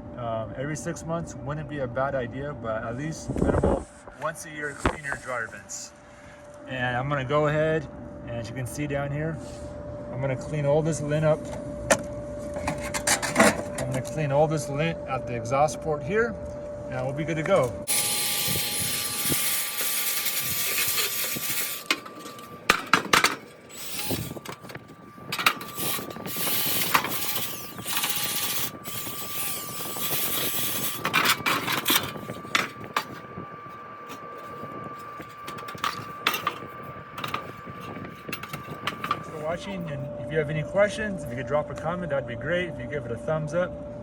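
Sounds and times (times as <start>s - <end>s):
brush scraping vent: 17.9s - 39.7s
faint thin tone: 20.2s - 41.4s.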